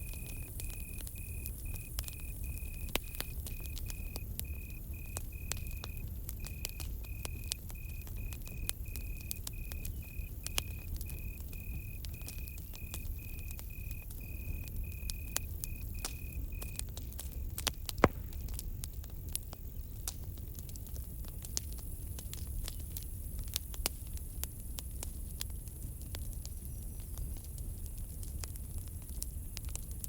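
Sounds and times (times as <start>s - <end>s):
cricket chirping: 0.0s - 18.5s
campfire crackling: 0.0s - 30.0s
sharp pops of fire: 0.0s - 30.0s.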